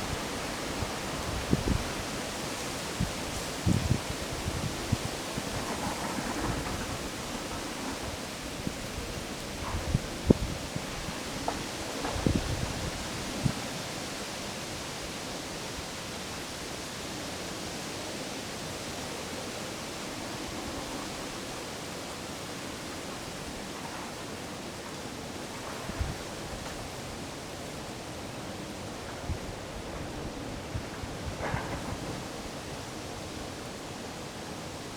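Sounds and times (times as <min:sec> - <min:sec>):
wind rushing through trees: 0:00.0 - 0:34.9
wind thumps on microphone: 0:02.9 - 0:13.6.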